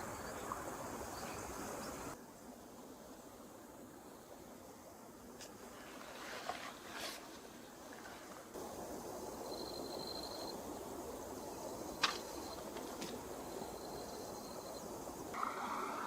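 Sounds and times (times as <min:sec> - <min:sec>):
stream water flowing: 0:05.5 - 0:16.0.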